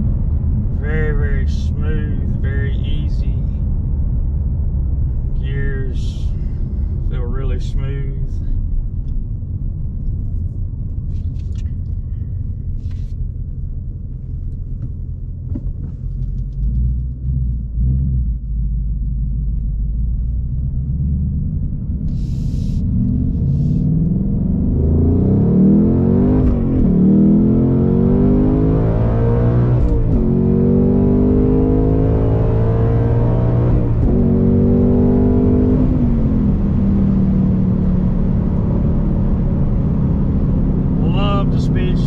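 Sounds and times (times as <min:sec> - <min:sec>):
car engine accelerating through gears: 0:14.1 - 0:42.0.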